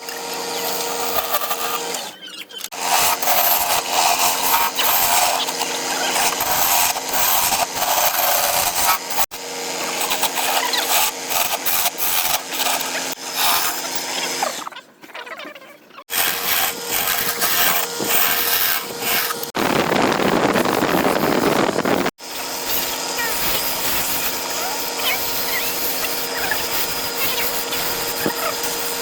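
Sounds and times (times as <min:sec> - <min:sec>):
lathe motor hum: 0:00.0 - 0:14.5, 0:16.1 - 0:29.0
turning tool scraping wood: 0:00.0 - 0:14.7, 0:16.0 - 0:29.0.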